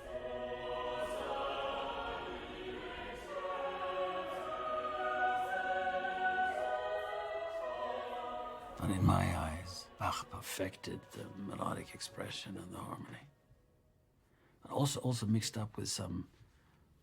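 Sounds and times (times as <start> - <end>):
choir singing: 0.0 - 13.2.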